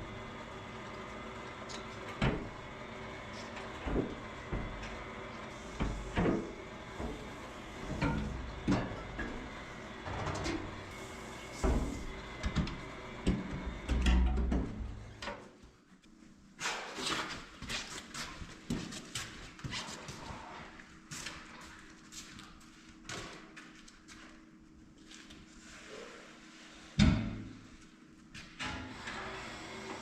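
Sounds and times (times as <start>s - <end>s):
steady background hum: 0.0s - 30.0s
knocks and clunks of tools: 3.6s - 5.1s, 5.8s - 9.4s, 10.0s - 10.8s, 11.6s - 15.4s.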